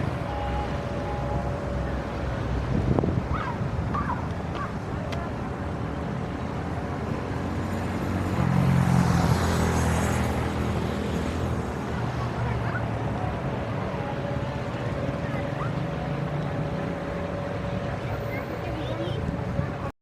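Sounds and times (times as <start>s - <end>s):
steady traffic hum: 0.0s - 20.0s
vehicle passing close by: 6.1s - 19.7s.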